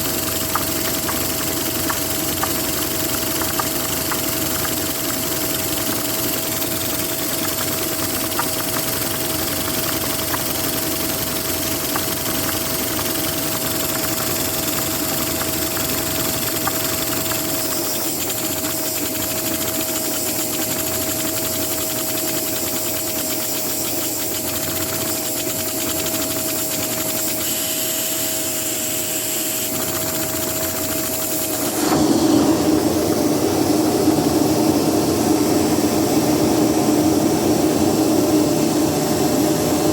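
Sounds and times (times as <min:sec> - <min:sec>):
faint rapid ticking of engine: 0:00.0 - 0:27.1
vacuum cleaner whine and rush: 0:00.0 - 0:39.9.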